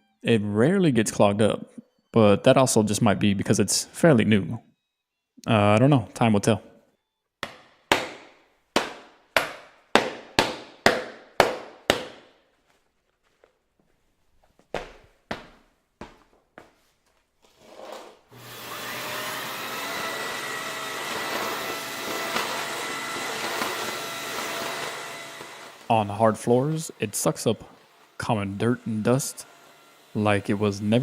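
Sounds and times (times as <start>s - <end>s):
vacuum cleaner motor whining: 17.8s - 31.0s.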